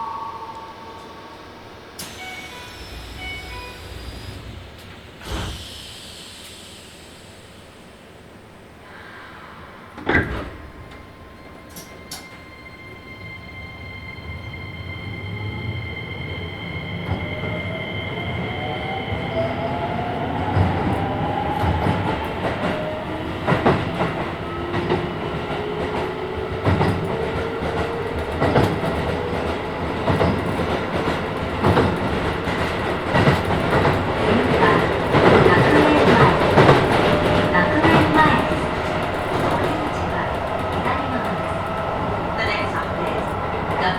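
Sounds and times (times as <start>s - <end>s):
train running noise: 0.0s - 43.9s
train motor whine climbing: 2.0s - 8.2s.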